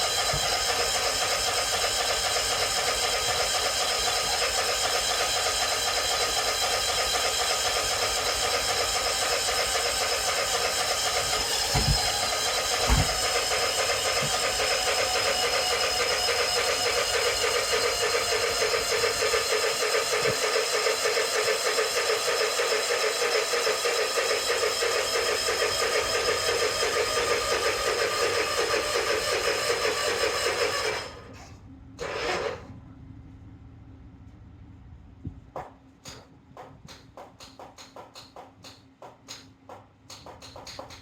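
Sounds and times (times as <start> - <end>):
mower engine running: 0.0 - 31.3.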